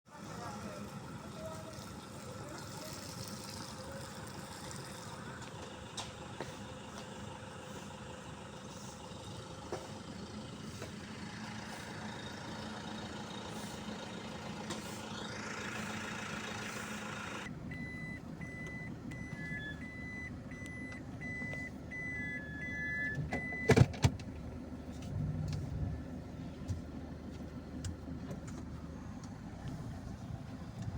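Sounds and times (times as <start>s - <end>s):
vehicle and street noise: 0.1s - 30.9s.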